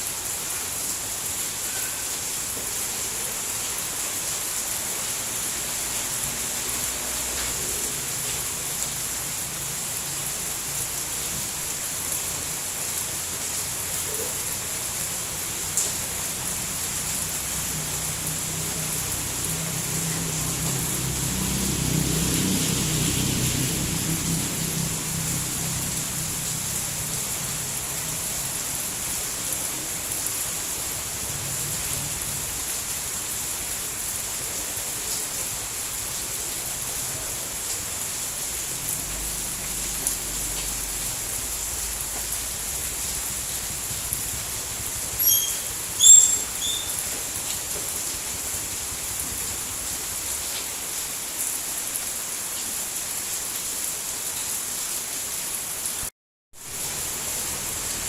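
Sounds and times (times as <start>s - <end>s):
rain hiss: 0.0s - 58.0s
short high chirps: 45.2s - 47.0s.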